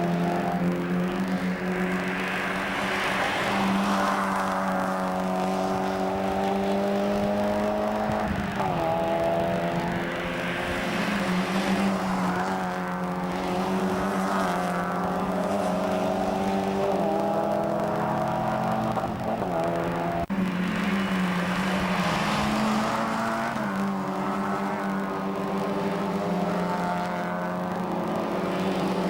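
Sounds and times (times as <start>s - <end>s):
racing car engine accelerating: 0.0s - 29.0s.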